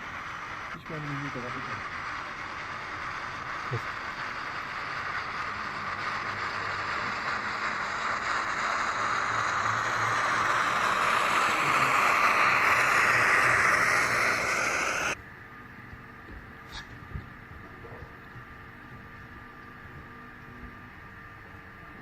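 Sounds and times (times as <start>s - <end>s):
steam locomotive hiss: 0.0s - 15.2s.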